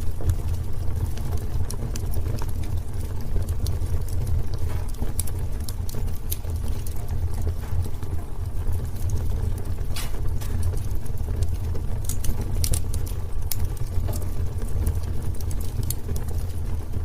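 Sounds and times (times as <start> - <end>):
low rumble of flames: 0.0 - 17.0
wood crackling and popping: 0.0 - 17.0.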